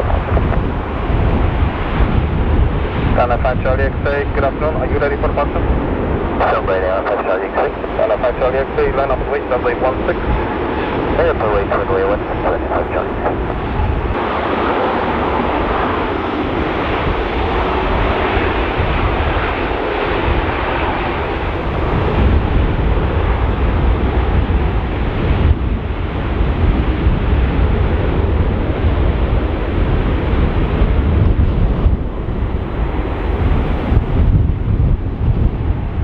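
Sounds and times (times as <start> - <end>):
jet engines roaring: 0.0 - 36.0
wind buffeting microphone: 0.0 - 36.0.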